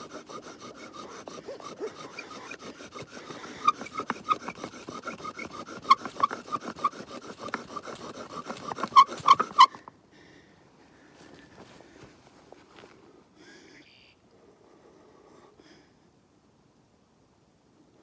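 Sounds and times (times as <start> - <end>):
wooden drill spindle grinding and squeaking: 0.0 - 9.9.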